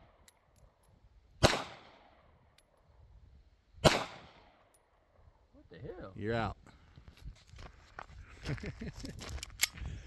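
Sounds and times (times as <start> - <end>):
handgun shots with echo: 1.4 - 2.1, 3.8 - 4.6.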